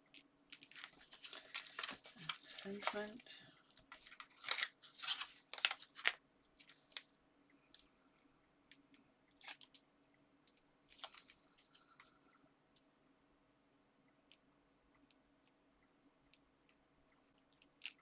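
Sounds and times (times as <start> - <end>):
paper rustling: 0.5 - 7.1.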